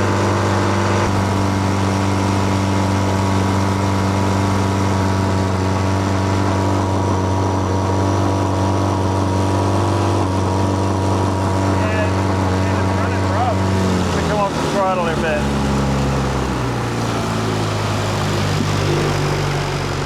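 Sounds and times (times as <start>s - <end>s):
boat motor running: 0.0s - 20.0s.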